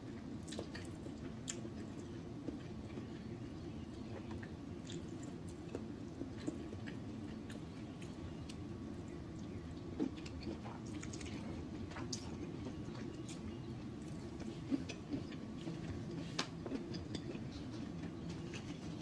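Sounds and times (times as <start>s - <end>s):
steady low hum: 0.0s - 19.0s
chewing mouth clicks and smacks: 0.4s - 3.1s, 4.1s - 8.6s, 9.3s - 19.0s.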